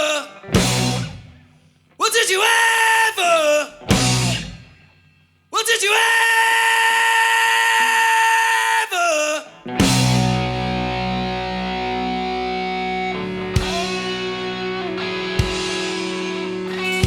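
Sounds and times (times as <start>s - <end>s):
blues-rock band playing: 0.4s - 1.3s, 3.9s - 4.6s, 9.7s - 17.0s
distorted electric guitar chord: 0.6s - 1.3s, 9.7s - 17.0s
sustained bass notes: 3.9s - 4.5s, 9.7s - 17.0s.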